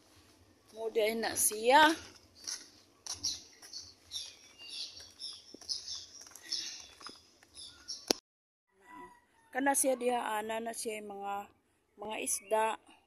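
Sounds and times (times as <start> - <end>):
small birds chirping: 0.6 - 8.2.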